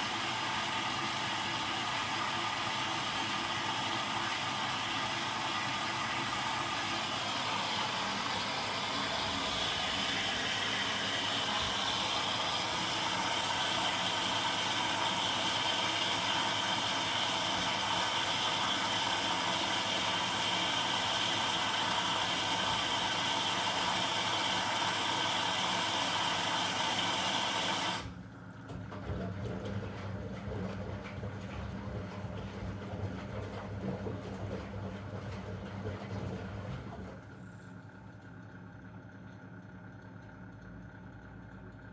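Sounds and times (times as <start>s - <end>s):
washing machine whooshing: 0.0s - 37.7s.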